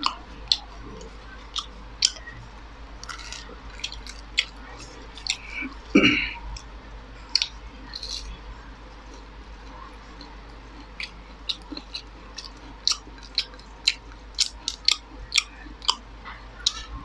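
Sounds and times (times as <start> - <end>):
chewing and wet mouth smacks: 0.0 - 2.4, 3.0 - 6.7, 7.3 - 8.4, 9.1 - 17.0
throaty sound: 5.3 - 6.5.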